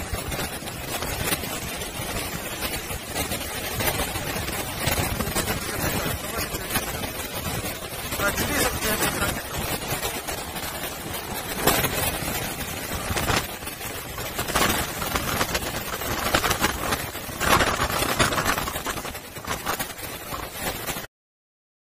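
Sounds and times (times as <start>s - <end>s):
rough sea waves: 0.0s - 21.1s
strong wind gusts: 0.0s - 21.1s.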